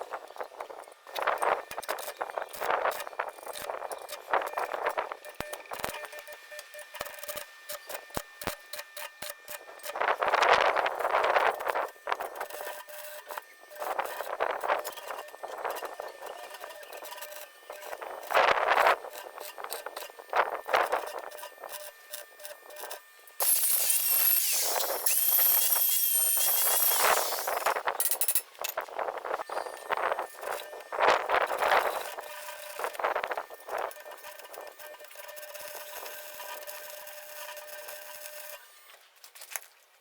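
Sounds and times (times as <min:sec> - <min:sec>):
power tool whining: 0:00.2 - 0:39.0.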